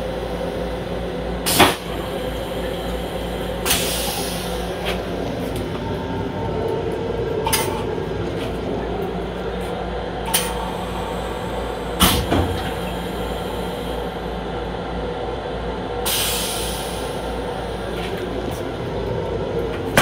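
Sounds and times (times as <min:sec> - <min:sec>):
railcar running rumble: 0:00.0 - 0:20.0.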